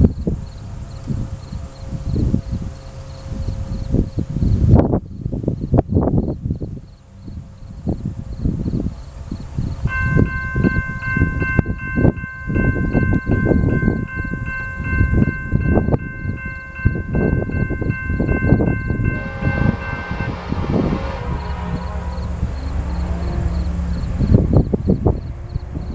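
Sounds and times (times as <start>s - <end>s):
freight train rumbling: 0.0s - 25.9s
railroad crossing bell ringing: 9.8s - 24.7s.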